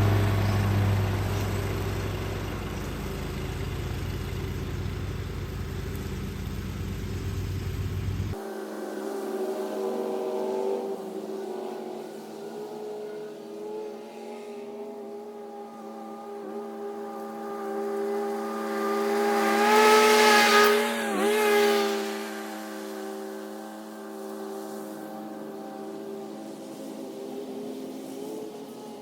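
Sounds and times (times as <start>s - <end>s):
lawn mower engine running: 0.0s - 8.4s.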